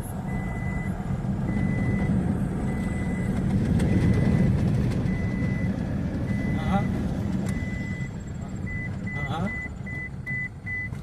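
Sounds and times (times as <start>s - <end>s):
low vehicle rumble: 0.0s - 11.0s
high beeps: 0.3s - 0.9s, 1.5s - 2.1s, 2.7s - 3.3s, 5.1s - 6.9s, 7.5s - 10.9s.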